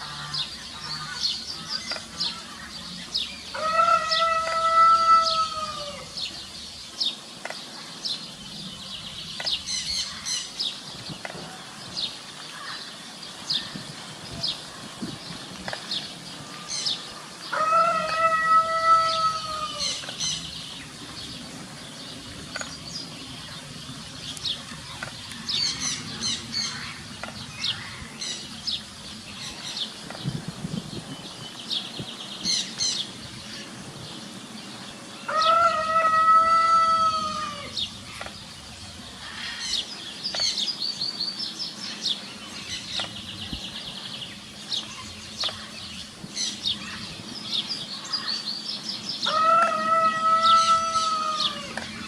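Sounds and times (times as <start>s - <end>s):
songbirds chirping: 0.0s - 52.0s
rooster crowing: 3.5s - 6.2s, 17.5s - 20.0s, 35.3s - 37.8s, 49.2s - 51.8s.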